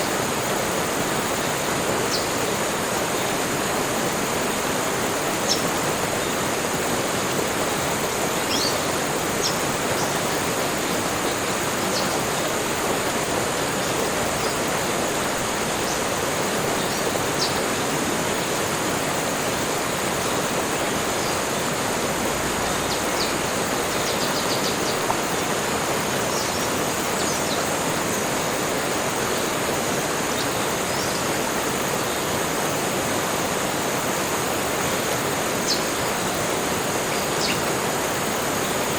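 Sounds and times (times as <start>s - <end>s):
high-pitched hiss: 0.0s - 38.9s
rushing water: 0.0s - 38.9s.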